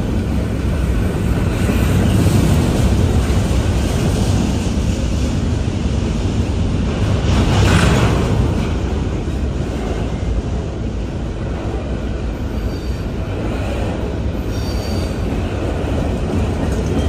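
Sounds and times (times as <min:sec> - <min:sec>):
freight train rumbling past: 0:00.0 - 0:17.0
high-pitched wheel squeals: 0:14.4 - 0:15.3.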